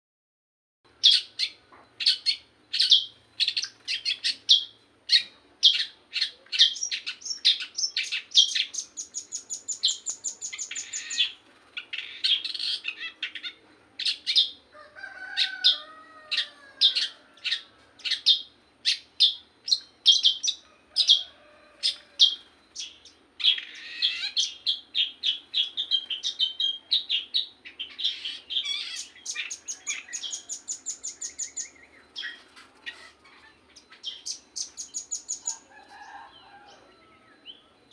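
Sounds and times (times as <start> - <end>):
songbird singing: 0.9 - 37.9.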